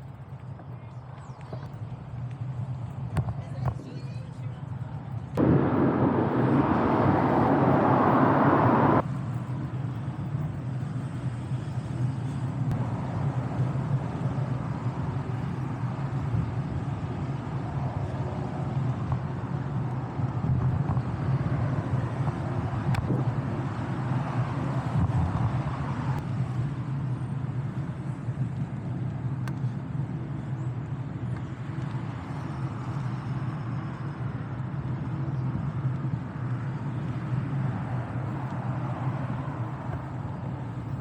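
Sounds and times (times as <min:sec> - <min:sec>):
wind and road noise: 0:00.0 - 0:41.0
loud rushing noise: 0:05.4 - 0:09.0.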